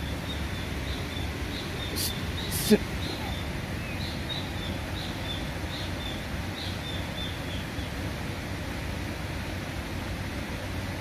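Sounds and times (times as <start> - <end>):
low background rush: 0.0 - 11.0.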